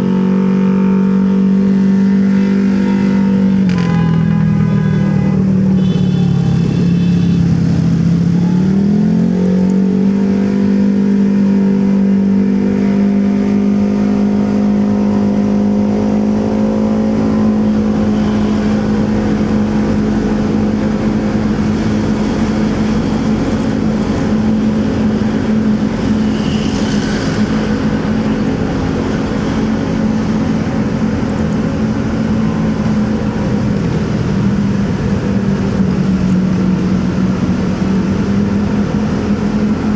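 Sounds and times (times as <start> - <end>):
road and wind noise: 0.0 - 39.9.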